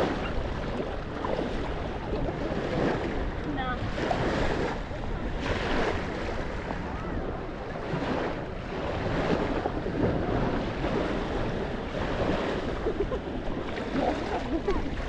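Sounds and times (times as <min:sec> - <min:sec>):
waves washing onto beach: 0:00.0 - 0:15.0
wind on microphone: 0:00.0 - 0:15.0.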